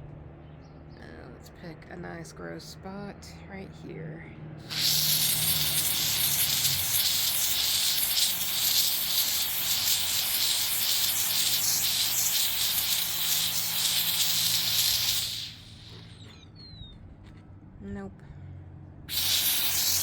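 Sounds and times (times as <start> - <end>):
steam cleaner hissing: 4.6 - 16.2, 19.1 - 20.0.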